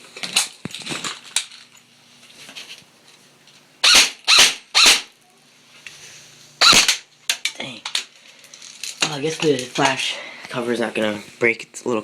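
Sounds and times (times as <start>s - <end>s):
airsoft rifle shots: 3.8s - 5.1s, 6.6s - 7.0s.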